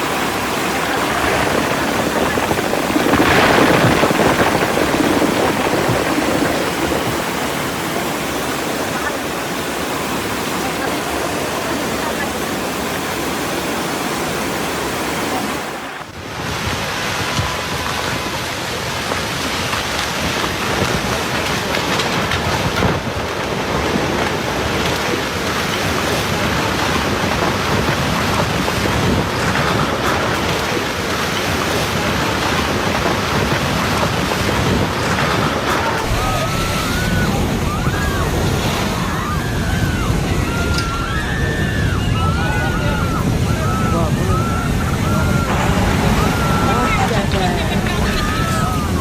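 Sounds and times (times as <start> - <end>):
rushing storm water: 0.0 - 49.0
wind: 0.0 - 49.0.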